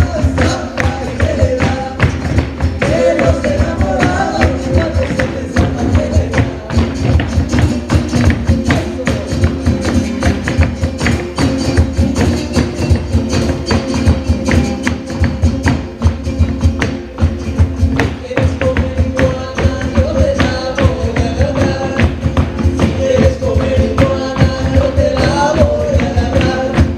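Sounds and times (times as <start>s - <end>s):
busy percussion beat: 0.0s - 26.9s
live band playing: 0.0s - 26.9s.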